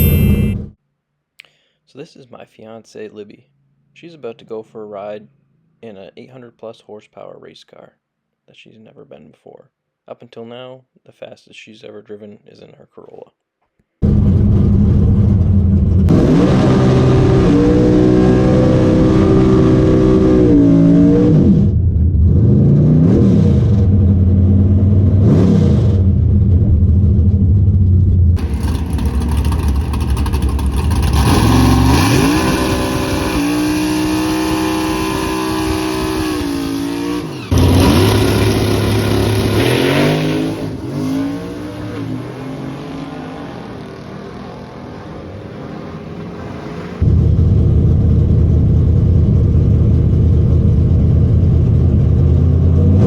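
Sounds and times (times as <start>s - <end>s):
race car engine revving: 14.0s - 27.8s, 28.4s - 53.0s.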